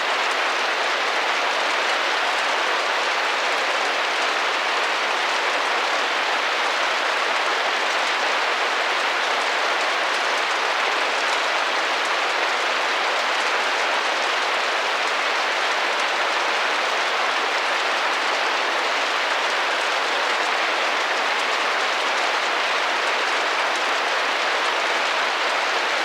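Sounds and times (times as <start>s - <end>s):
rain tapping on a window: 0.0s - 26.0s.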